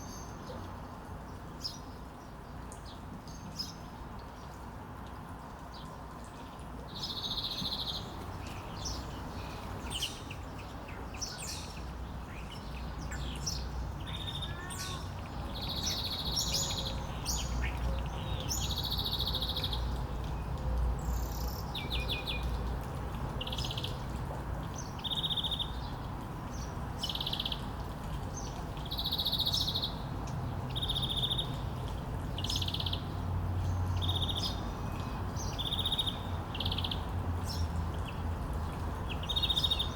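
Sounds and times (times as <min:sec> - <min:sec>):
songbirds trilled chirps: 0:05.7 - 0:22.6, 0:24.6 - 0:31.7, 0:32.3 - 0:39.9.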